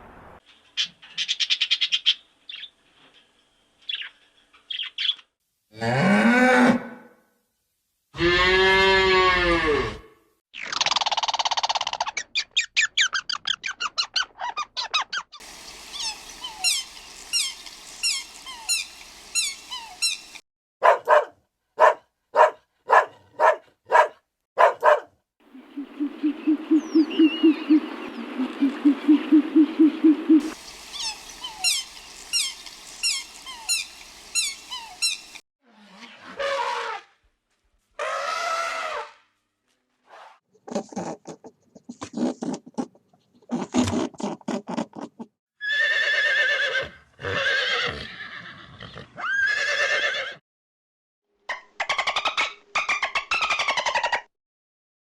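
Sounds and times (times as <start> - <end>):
high chirping: 15.5 - 20.4, 25.7 - 35.4.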